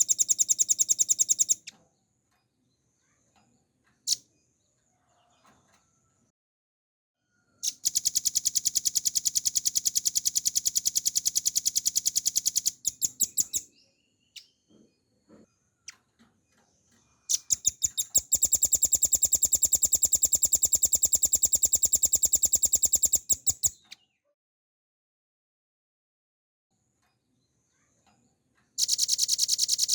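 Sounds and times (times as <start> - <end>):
bird singing rapid trills: 0.0 - 1.7, 7.6 - 14.7, 17.2 - 24.0, 28.8 - 29.9.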